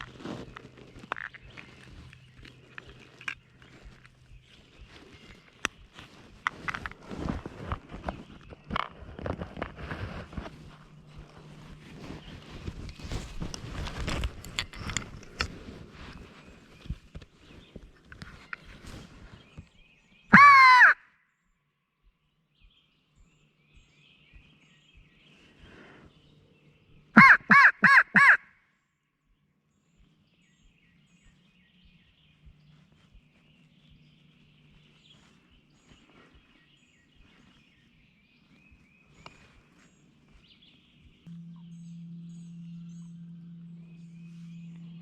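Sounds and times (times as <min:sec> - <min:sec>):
crow call caws: 0:20.3 - 0:21.1, 0:27.2 - 0:28.6.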